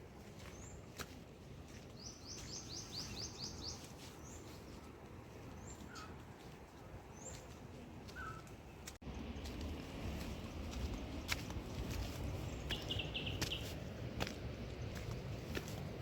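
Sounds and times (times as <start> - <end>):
small bird chirping: 2.0 - 4.5, 11.2 - 13.8.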